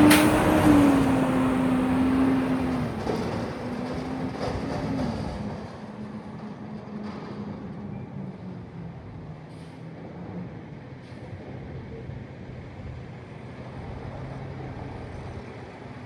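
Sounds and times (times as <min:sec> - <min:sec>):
diesel truck engine idling: 0:00.0 - 0:04.5.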